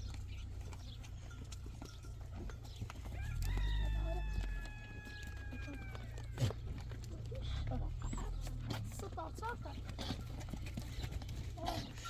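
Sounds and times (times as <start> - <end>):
rooster crowing: 3.1 - 6.3.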